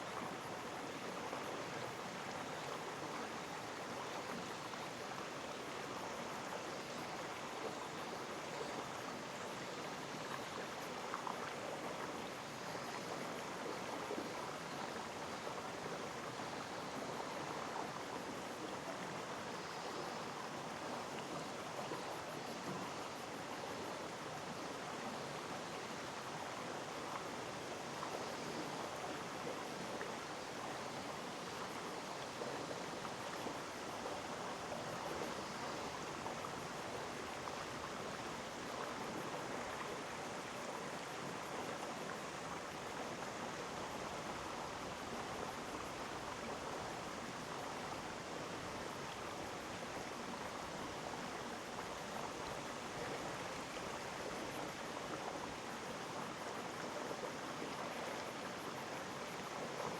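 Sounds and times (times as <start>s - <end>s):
stream flowing over rocks: 25.2s - 59.9s.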